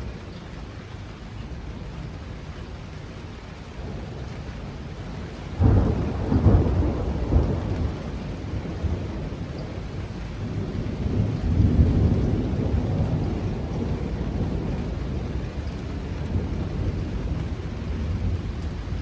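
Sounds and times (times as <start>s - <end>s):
steady rain: 0.0s - 19.0s
thunder rumbling: 3.8s - 19.0s.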